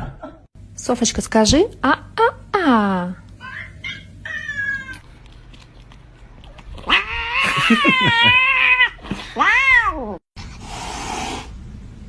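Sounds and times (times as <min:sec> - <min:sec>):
cat yowling and meowing: 0:03.4 - 0:05.0, 0:06.8 - 0:10.2.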